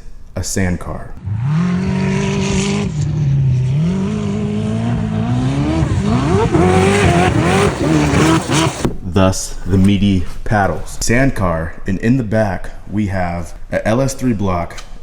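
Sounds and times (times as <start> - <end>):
car engine running and revving: 1.2 - 8.9.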